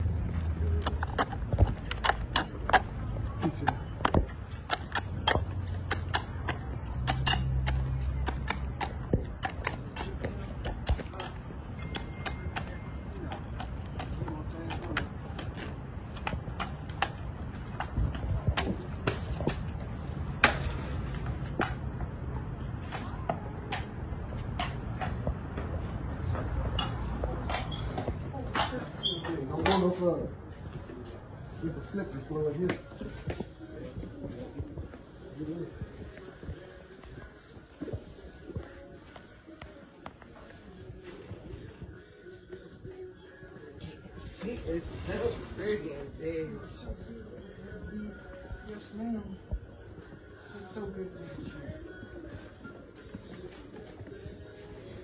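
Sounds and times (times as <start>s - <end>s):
horse hooves clip-clopping: 0.0s - 30.0s.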